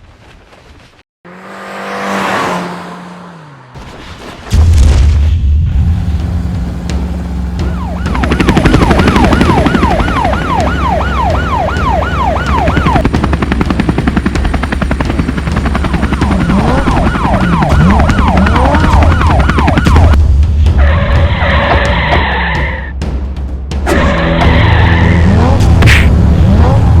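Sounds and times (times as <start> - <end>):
low engine rumble: 4.5 - 19.3
emergency siren wailing: 6.9 - 13.1, 15.4 - 20.2.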